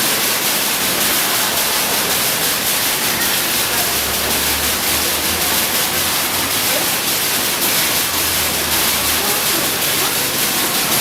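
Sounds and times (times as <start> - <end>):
water fountain splashing: 0.0 - 11.0.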